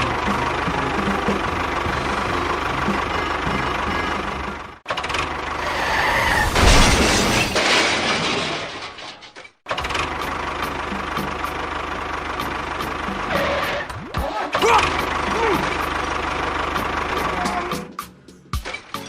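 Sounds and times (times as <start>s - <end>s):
small engines running: 0.0s - 5.8s, 9.7s - 18.0s.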